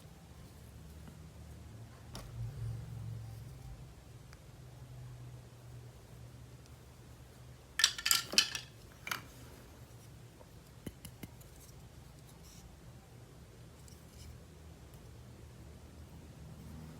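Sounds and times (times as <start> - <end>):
toys clicking and rattling: 7.8 - 9.2.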